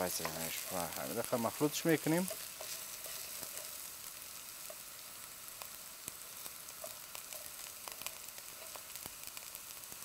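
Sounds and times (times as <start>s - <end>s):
potatoes sizzling in oil: 0.0s - 10.0s
spatula stirring in pan: 0.0s - 10.0s.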